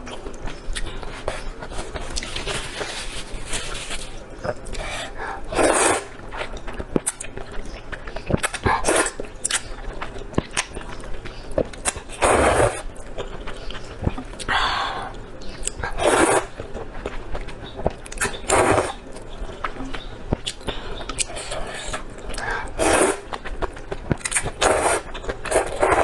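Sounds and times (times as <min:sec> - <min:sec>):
wet chewing clicks: 0:06.3 - 0:12.2, 0:12.8 - 0:25.9
noodle slurping: 0:15.9 - 0:16.6, 0:22.7 - 0:23.3, 0:24.4 - 0:26.0.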